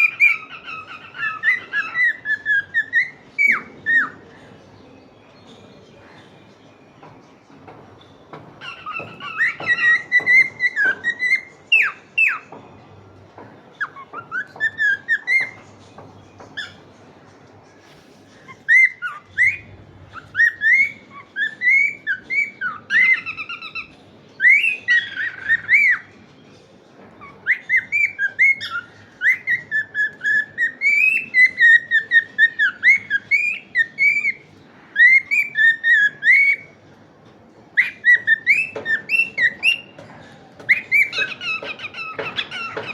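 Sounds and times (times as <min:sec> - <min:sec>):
cockatiel chirping and whistling: 0:00.0 - 0:04.2, 0:08.6 - 0:12.4, 0:18.7 - 0:26.1, 0:27.4 - 0:34.4, 0:35.0 - 0:36.7, 0:37.8 - 0:39.9, 0:40.7 - 0:42.9.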